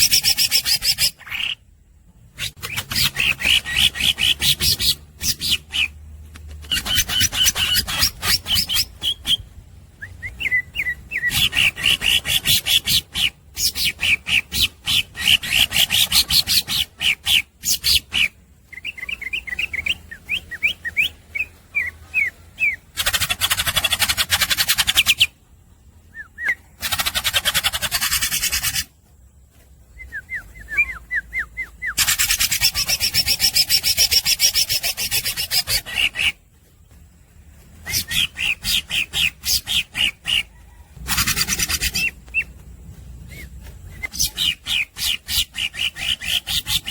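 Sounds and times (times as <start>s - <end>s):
bird singing whistled chirps: 6.7s - 22.9s, 26.0s - 27.0s, 29.5s - 46.9s.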